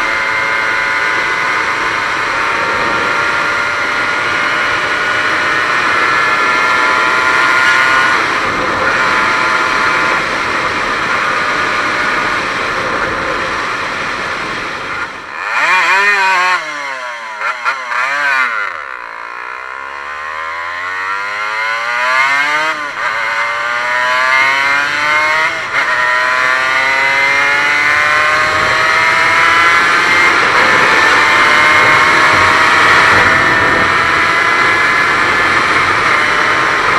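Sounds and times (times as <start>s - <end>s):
wind noise: 0.0s - 15.3s, 23.8s - 36.9s
two-stroke motorcycle engine: 0.0s - 36.9s.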